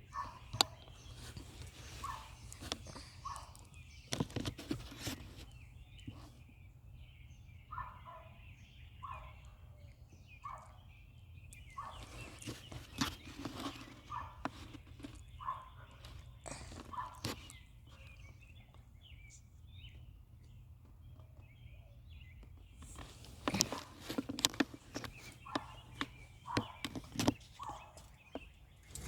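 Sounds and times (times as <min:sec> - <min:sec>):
knocks and rustles: 0:00.2 - 0:06.4, 0:11.9 - 0:18.2, 0:22.4 - 0:29.0.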